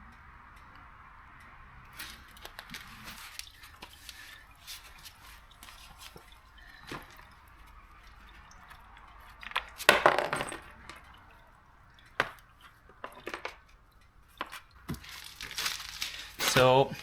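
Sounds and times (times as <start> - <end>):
metal tools clinking: 7.9 - 11.4, 12.1 - 13.7, 14.3 - 17.0.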